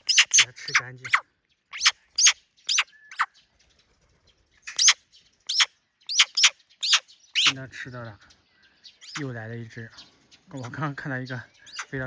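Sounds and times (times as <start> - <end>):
young bird squeaky begging calls: 0.0 - 3.4, 4.6 - 7.9, 8.9 - 9.4, 10.5 - 12.0.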